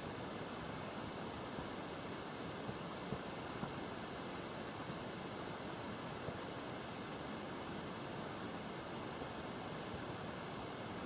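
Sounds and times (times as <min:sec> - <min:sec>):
faint light ticks: 0:02.7 - 0:03.8.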